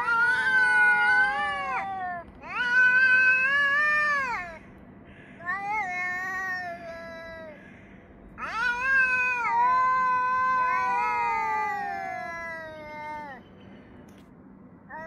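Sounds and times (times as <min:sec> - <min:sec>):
cats yowling: 0:00.0 - 0:04.6, 0:05.4 - 0:07.6, 0:08.4 - 0:13.4.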